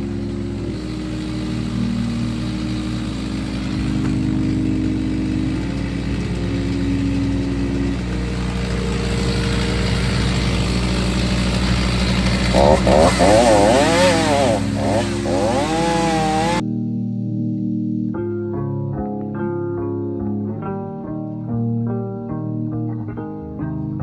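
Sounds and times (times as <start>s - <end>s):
small gasoline engine running: 0.0s - 16.6s.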